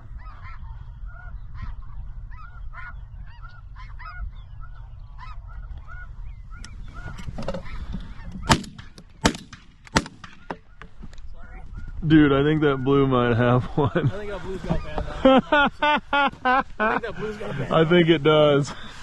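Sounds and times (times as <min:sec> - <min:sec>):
geese honking: 0:00.0 - 0:09.0
low wind rumble: 0:00.0 - 0:19.0
loud shotgun shots: 0:08.4 - 0:10.6.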